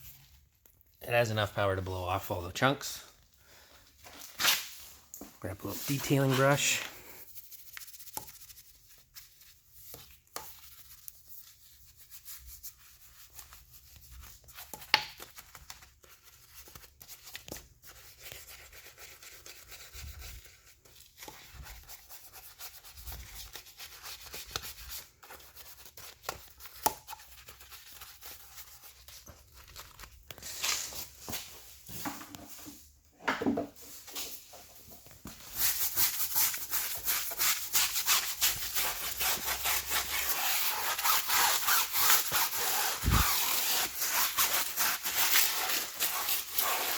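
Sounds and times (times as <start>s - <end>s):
brush scrubbing wet car wheel: 35.5s - 46.9s.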